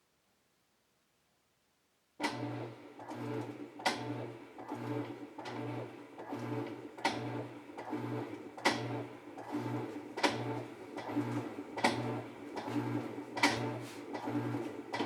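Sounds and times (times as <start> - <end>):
washer motor humming in strokes: 4.0 - 15.0.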